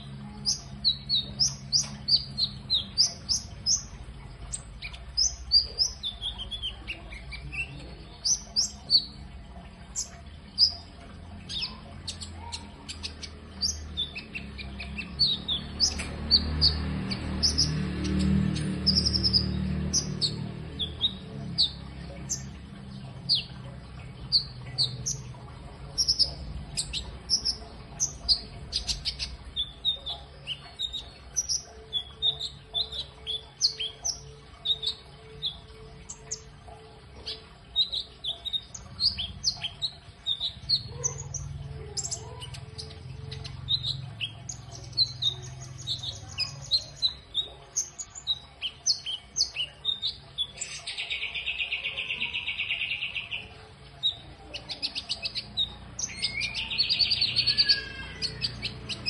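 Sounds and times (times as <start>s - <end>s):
songbird chirping and whistling: 37.2s - 59.0s.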